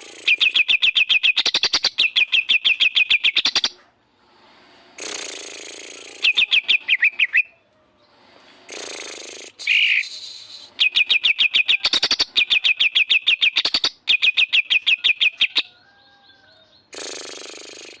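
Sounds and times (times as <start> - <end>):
bird harsh hissing: 0.0 - 0.6, 4.2 - 6.5, 8.2 - 10.8, 16.9 - 18.0
bird singing rapid sharp notes: 0.0 - 3.8, 5.0 - 7.6, 8.6 - 15.6.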